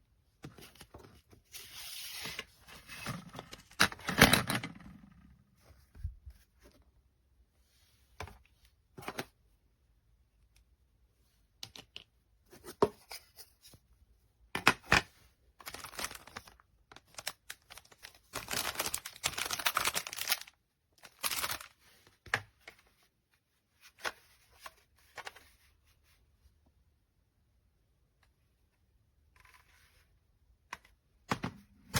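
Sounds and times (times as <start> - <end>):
packaging crinkling and tearing: 15.6 - 21.7.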